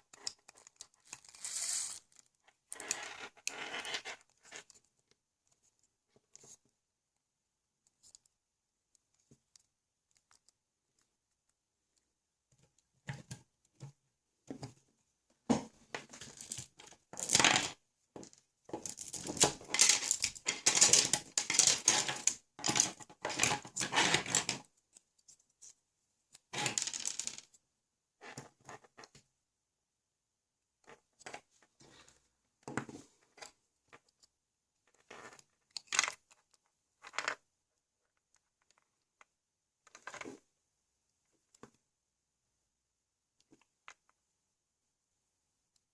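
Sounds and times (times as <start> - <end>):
small parts clicking: 18.8 - 25.4.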